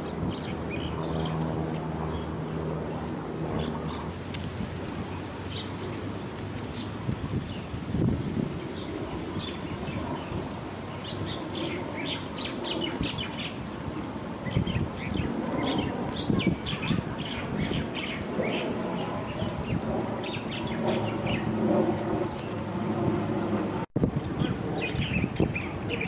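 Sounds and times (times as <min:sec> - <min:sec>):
small birds chirping: 0:14.4 - 0:21.5, 0:24.4 - 0:26.0.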